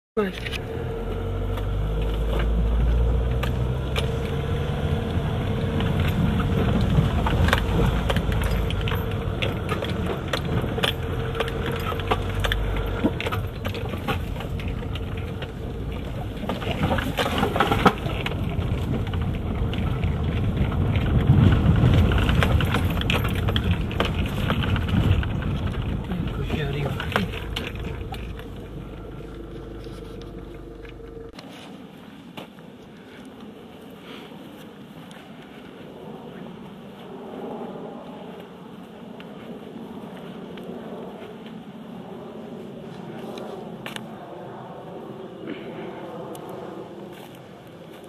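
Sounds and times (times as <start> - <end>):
rattles and clicks: 0.2 - 31.4
car engine rumble: 0.2 - 31.5.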